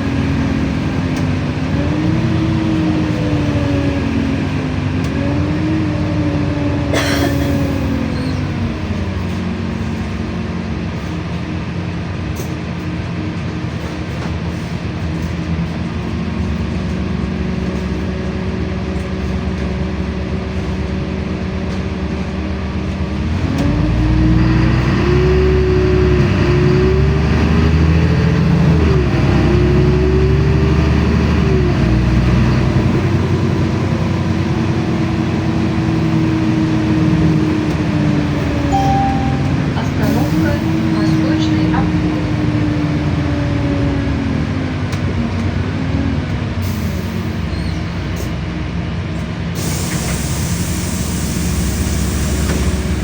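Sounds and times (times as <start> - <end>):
bus engine accelerating: 0.0 - 53.0.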